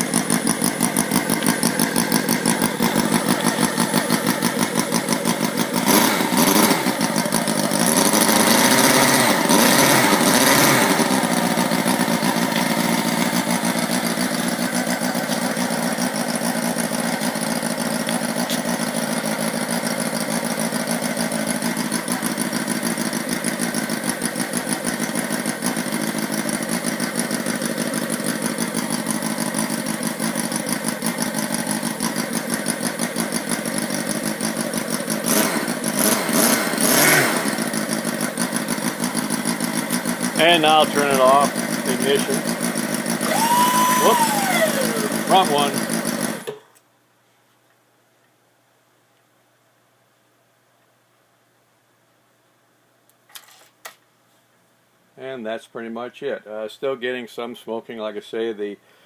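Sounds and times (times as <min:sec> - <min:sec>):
model engine running: 0:00.0 - 0:46.6.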